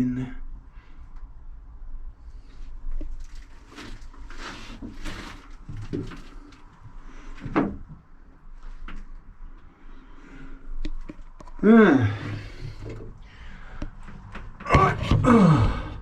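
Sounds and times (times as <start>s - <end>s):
rustling: 2.4s - 7.4s
knocks and scrapes: 3.2s - 6.6s, 14.0s - 16.0s.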